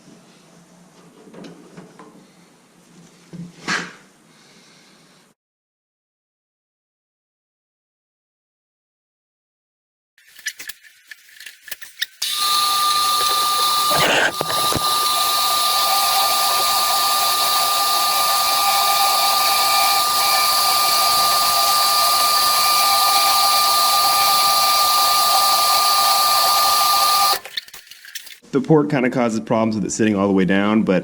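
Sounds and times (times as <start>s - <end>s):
bandsaw running with whine: 12.2s - 27.6s.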